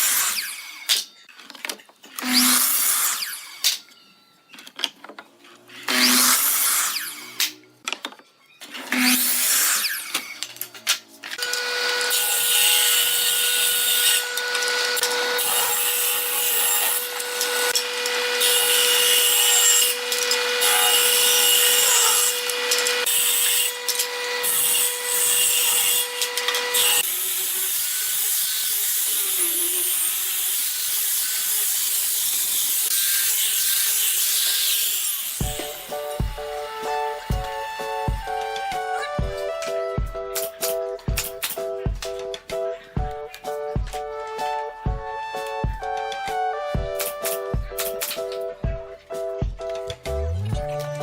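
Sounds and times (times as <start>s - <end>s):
power tool motor whine: 11.4s - 27.8s.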